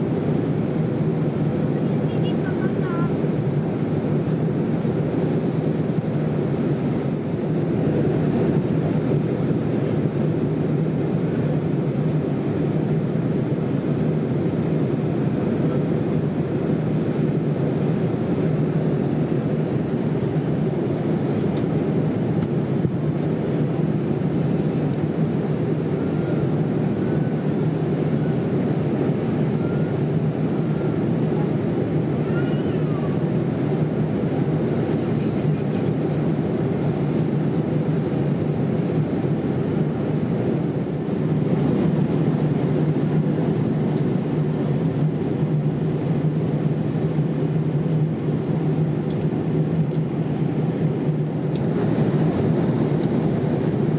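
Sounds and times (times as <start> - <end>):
airliner cabin noise: 0.0 - 53.9.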